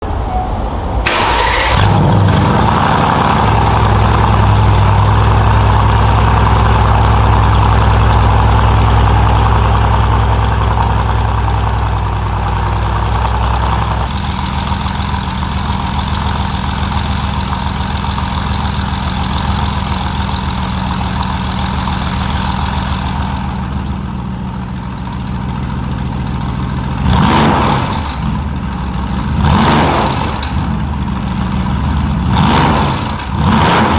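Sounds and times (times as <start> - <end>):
car engine idling: 1.0 - 33.9.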